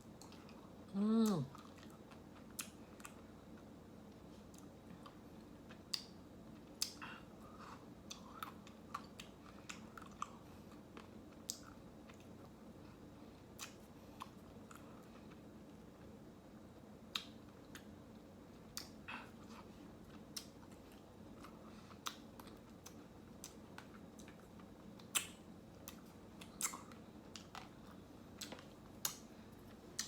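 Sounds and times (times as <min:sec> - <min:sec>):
wet mouth clicks and smacks: 0:06.8 - 0:07.0, 0:25.0 - 0:27.7.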